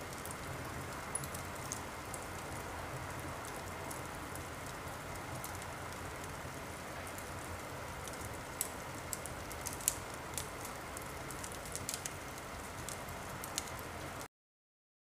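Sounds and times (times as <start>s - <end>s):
wood fire crackling: 0.0s - 14.3s.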